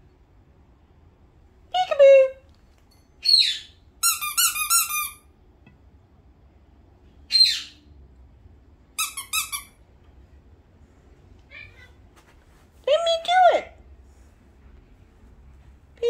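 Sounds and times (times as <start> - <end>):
bird chirps: 3.2 - 3.8.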